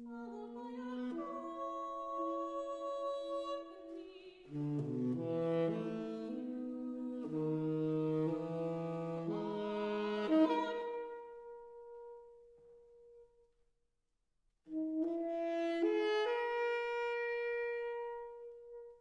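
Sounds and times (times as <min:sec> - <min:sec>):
classical chamber music: 0:00.0 - 0:11.0
saxophone held notes: 0:00.0 - 0:13.2.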